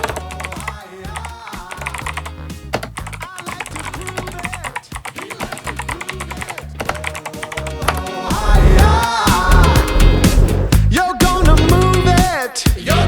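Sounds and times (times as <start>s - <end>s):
background music with bass line: 8.3s - 13.0s.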